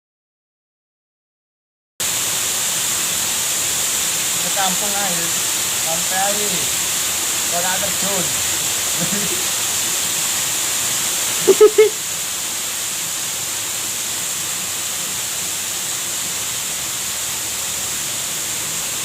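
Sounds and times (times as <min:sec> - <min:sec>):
small waterfall rushing: 0:02.0 - 0:19.0
pitched call in quick pulses: 0:11.4 - 0:12.0.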